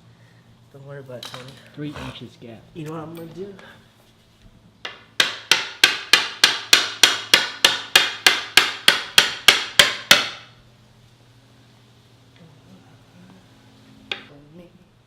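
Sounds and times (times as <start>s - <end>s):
hammer striking: 4.8s - 10.6s.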